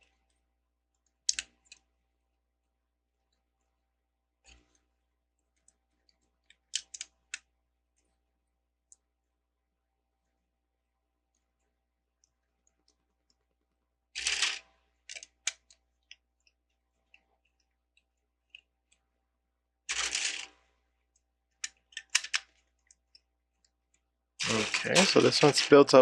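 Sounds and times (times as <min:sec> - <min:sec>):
plastic bricks clicking: 0:06.5 - 0:07.4, 0:14.2 - 0:15.8, 0:21.6 - 0:22.6.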